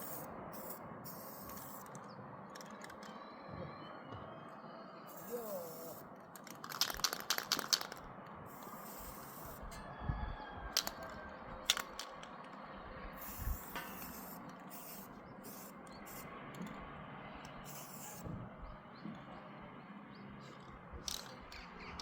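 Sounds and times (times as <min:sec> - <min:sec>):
rattling clicks: 0:01.4 - 0:03.1, 0:06.2 - 0:08.1, 0:10.8 - 0:12.6, 0:21.0 - 0:22.0.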